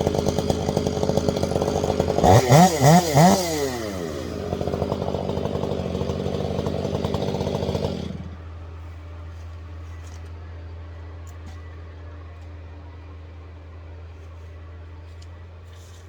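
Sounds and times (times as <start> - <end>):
chainsaw idling and revving: 0.0 - 8.6.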